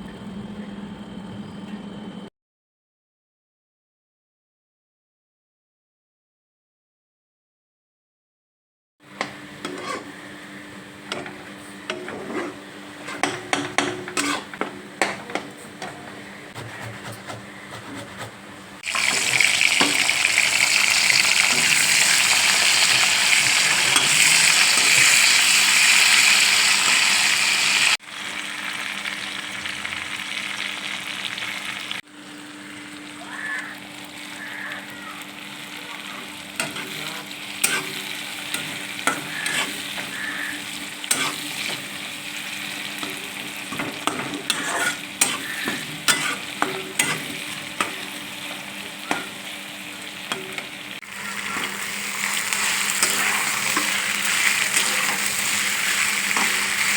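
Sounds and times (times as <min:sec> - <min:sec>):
food sizzling in oil: 0:09.5 - 0:15.2, 0:18.8 - 0:32.0, 0:32.7 - 0:56.9.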